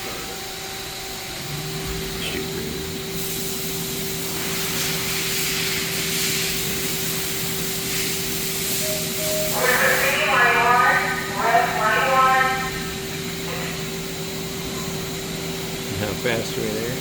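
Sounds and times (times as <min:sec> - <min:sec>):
lathe motor hum: 0:00.0 - 0:09.2
spindle high hiss: 0:01.1 - 0:13.9.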